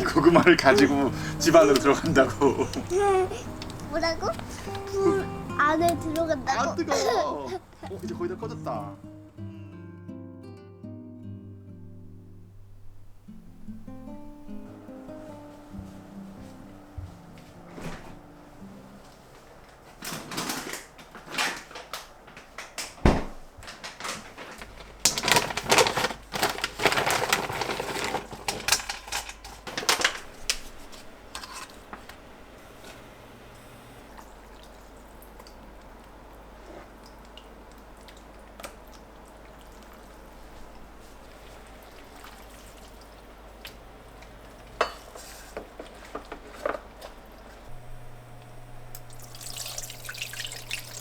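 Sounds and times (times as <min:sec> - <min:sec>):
kitchenware clinking and clattering: 0:23.8 - 0:32.2, 0:44.5 - 0:47.2
low steady hum: 0:28.1 - 0:51.0.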